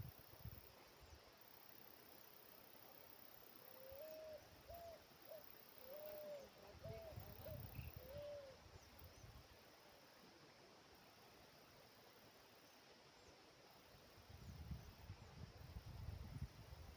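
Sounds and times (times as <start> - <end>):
bird hooting: 3.7 - 8.6.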